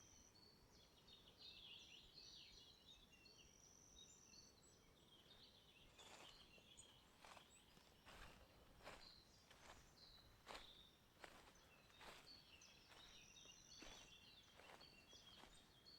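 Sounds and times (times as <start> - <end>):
songbird chirps and twittering: 0.0 - 15.9
footsteps on forest path: 5.9 - 15.9.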